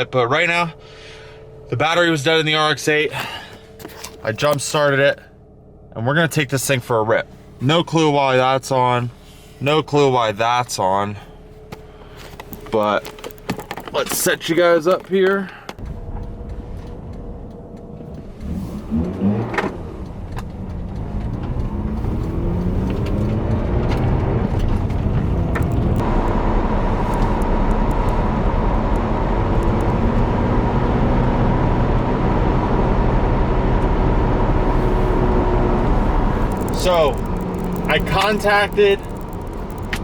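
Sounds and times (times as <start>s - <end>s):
rotary engine accelerating: 15.8s - 40.0s.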